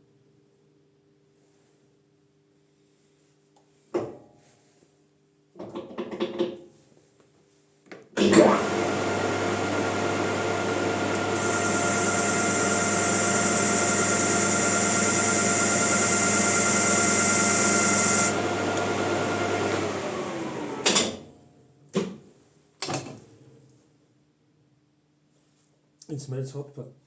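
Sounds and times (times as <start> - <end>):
lathe motor running: 8.2 - 20.9.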